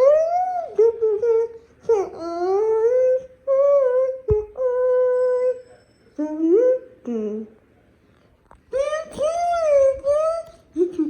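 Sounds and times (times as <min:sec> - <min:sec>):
person humming wordless notes: 0:08.7 - 0:11.0.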